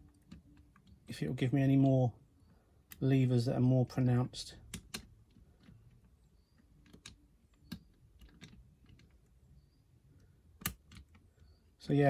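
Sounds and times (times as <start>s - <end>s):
lock pick clicking in lock: 10.6s - 11.2s.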